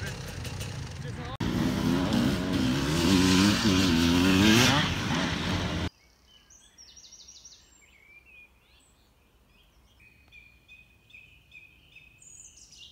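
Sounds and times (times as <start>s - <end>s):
faint birdsong: 5.8s - 12.9s.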